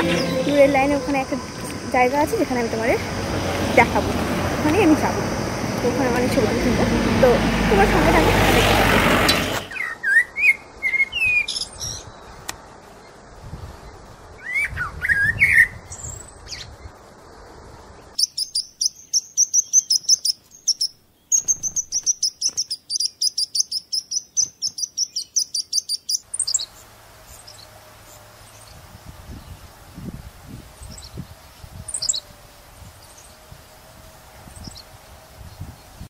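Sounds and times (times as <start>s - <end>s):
rapid high bird chirps: 18.2s - 27.6s.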